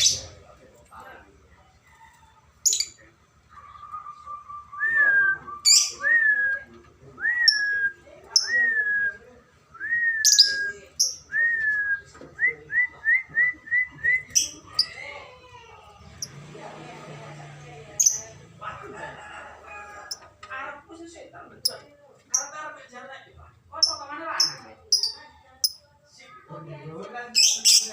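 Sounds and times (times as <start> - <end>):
lovebirds chirping: 10.3 - 11.3, 13.9 - 15.1, 18.0 - 18.4, 23.8 - 25.8.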